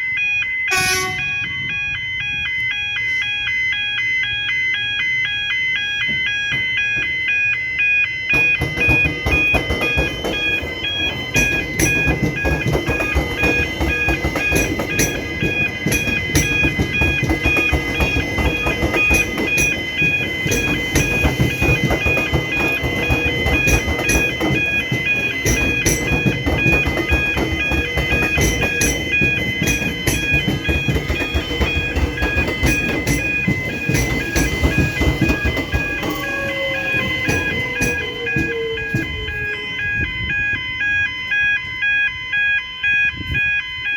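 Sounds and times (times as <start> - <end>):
level crossing bells ringing: 0.0 - 43.9
train wheels clacking: 8.3 - 40.6.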